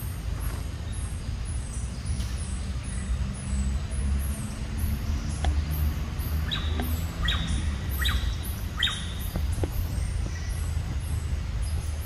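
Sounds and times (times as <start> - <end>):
high bird chirps: 4.9 - 12.0.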